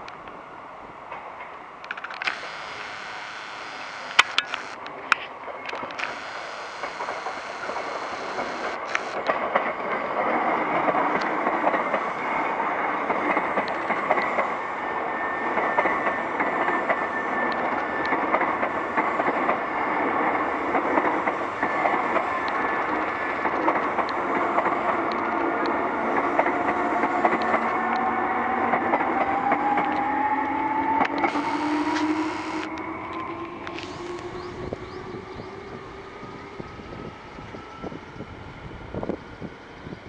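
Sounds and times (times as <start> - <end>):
traction motor tone: 2.2 - 4.8, 5.9 - 9.2, 31.2 - 32.8, 33.7 - 34.5
electric train pulling away: 2.2 - 40.0.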